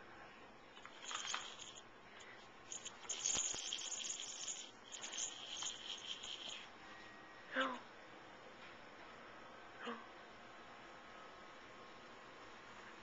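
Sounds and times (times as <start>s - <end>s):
toy rattling: 0.8s - 6.7s.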